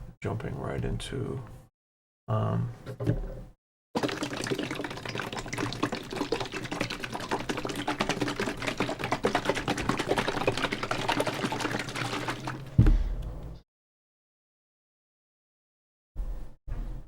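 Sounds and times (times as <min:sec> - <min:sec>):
heavy thump: 0:12.8 - 0:13.4.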